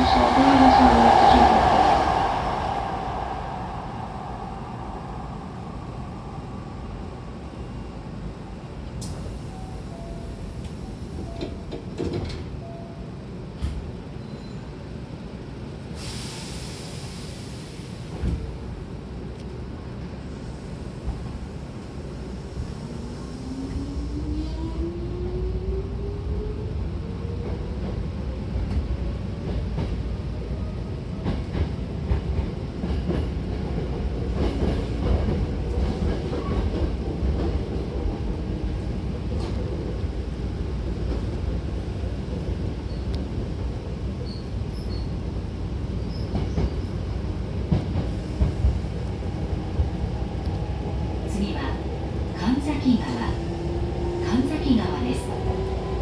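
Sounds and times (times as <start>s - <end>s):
train rumble: 14.8s - 56.0s.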